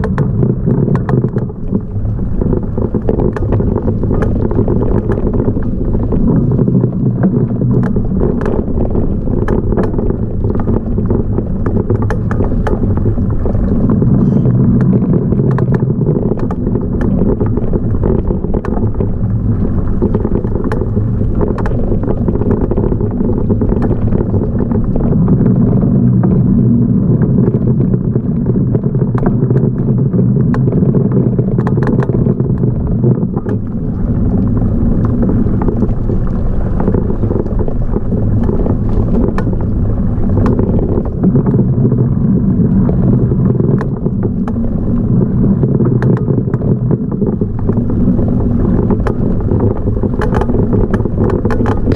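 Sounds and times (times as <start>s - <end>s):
small knocks and rattles: 0.0s - 25.0s, 30.4s - 33.7s, 45.9s - 51.9s
wind and riding rumble: 0.0s - 51.9s.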